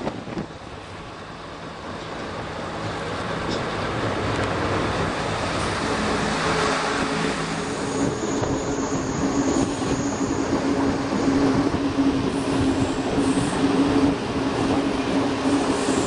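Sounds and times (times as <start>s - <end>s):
train engine hum and rail noise: 0.0s - 16.0s
high wheel squeal: 6.5s - 11.6s.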